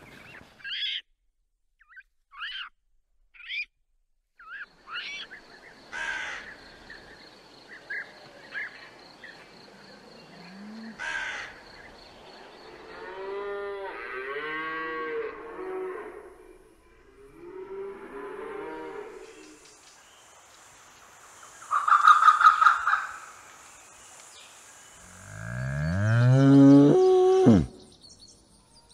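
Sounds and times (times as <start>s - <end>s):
crow cawing: 5.9s - 6.6s, 11.0s - 11.6s
cattle mooing: 25.1s - 27.7s.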